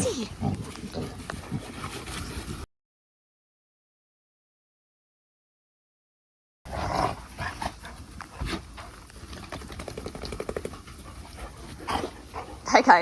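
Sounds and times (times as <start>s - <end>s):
scattered clicks: 9.3s - 10.7s.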